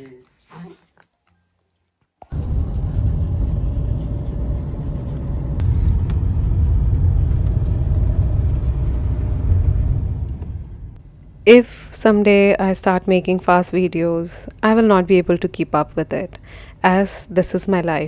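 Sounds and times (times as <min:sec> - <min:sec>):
car engine and road rumble: 0:02.2 - 0:11.6.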